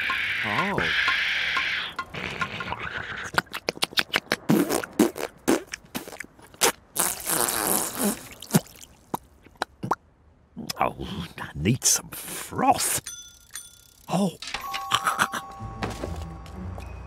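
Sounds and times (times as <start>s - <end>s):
cartoon clicks and knocks: 0.0s - 4.5s.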